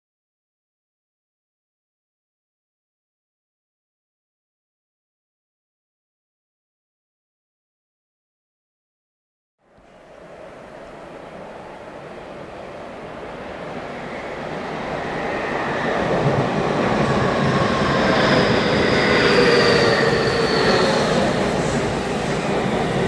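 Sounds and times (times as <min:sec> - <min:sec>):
high train whine: 0:09.6 - 0:23.0
train wheels rumbling on rails: 0:10.1 - 0:23.0.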